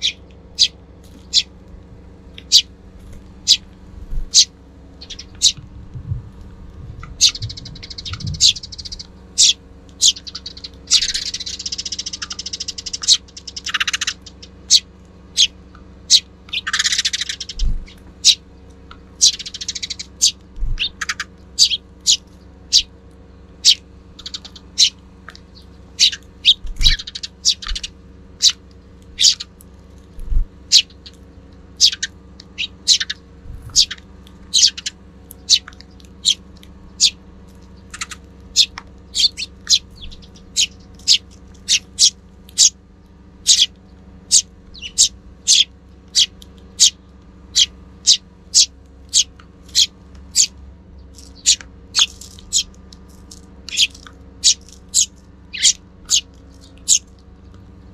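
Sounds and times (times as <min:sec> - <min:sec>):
sparrows chirping: 0:00.0 - 0:57.9
low thumps: 0:05.4 - 0:08.8.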